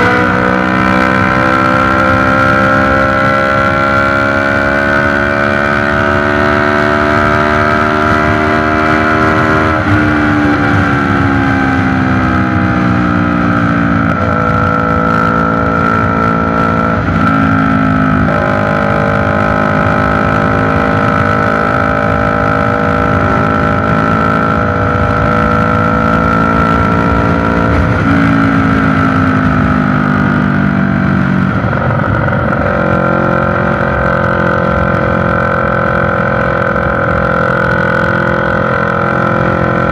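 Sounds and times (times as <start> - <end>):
motorcycle engine at raised revs: 0.0 - 39.9.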